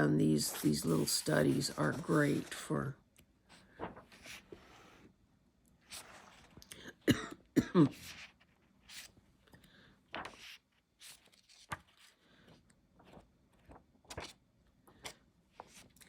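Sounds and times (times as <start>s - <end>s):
book pages rustling: 0.0s - 2.9s, 3.5s - 5.1s, 5.8s - 6.6s, 10.1s - 16.0s.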